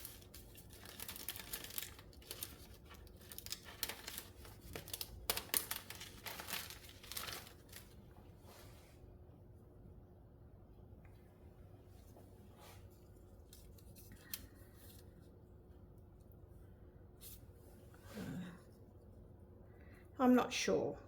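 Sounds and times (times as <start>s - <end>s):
packaging crinkling and rustling: 0.0s - 8.1s.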